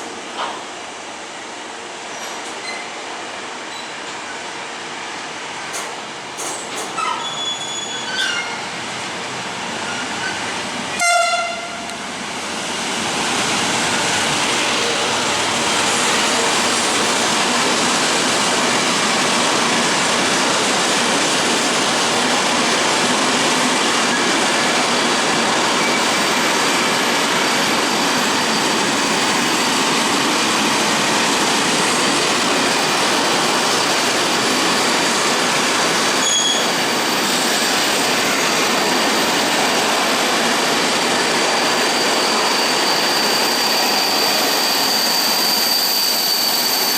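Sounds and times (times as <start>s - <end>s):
train wheels on rail: 0.0s - 46.9s
train horn blast: 11.0s - 12.0s.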